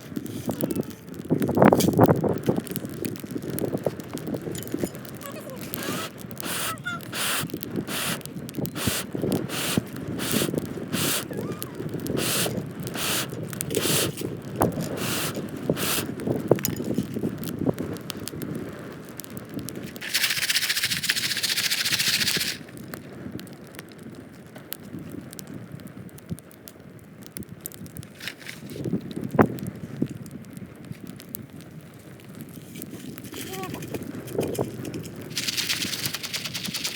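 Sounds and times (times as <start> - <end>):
campfire crackling: 0.0 - 36.9
popcorn pan rattling: 1.5 - 11.3, 19.9 - 22.7, 33.3 - 36.9
steady hiss: 5.7 - 16.2, 20.0 - 22.7, 34.2 - 36.9.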